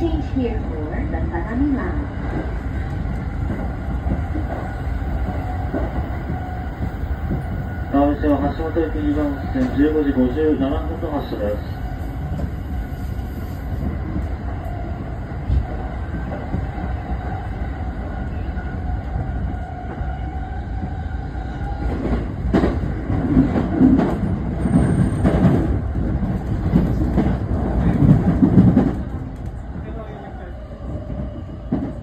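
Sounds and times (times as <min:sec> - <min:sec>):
train running rumble: 0:00.0 - 0:32.0.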